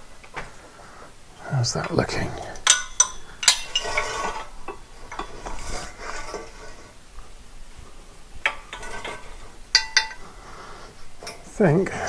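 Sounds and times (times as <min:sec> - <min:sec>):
steel prop clinking and rattling: 0:01.8 - 0:06.9, 0:08.4 - 0:10.6.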